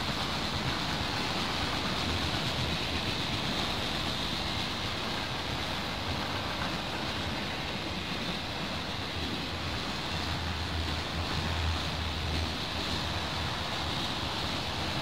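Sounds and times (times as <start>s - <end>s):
train wheels running on rails: 0.0s - 15.0s.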